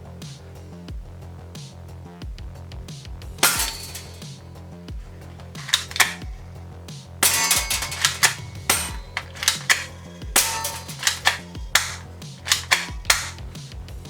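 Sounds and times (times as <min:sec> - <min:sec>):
toy gun shots: 0:03.4 - 0:04.4, 0:05.4 - 0:06.5, 0:07.2 - 0:13.6.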